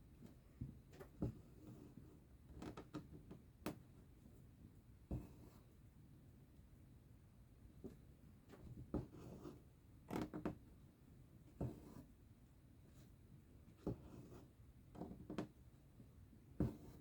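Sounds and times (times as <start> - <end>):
needle and thread through fabric: 16.6 - 17.0.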